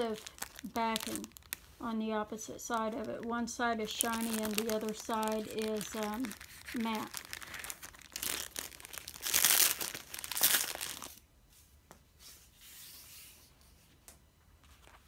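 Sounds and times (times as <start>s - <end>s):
tape crinkling and rustling: 0.0s - 2.0s, 2.6s - 11.2s.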